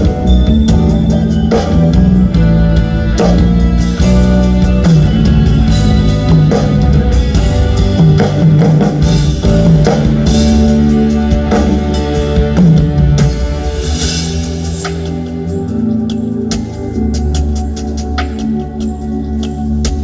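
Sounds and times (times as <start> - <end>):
drum strikes: 0.0 - 15.4
live band playing rock music: 0.0 - 20.0.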